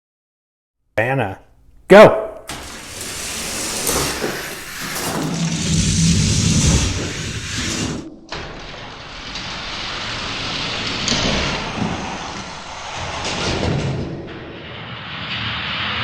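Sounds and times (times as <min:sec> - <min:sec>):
toy cars rolling on plastic track: 0:02.5 - 0:14.2.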